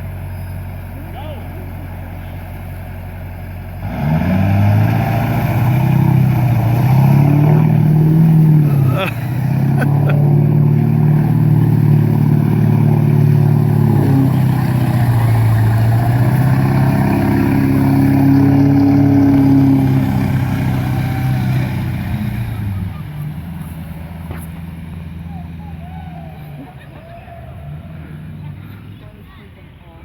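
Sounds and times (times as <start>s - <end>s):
diesel engine under load: 0.0s - 30.0s.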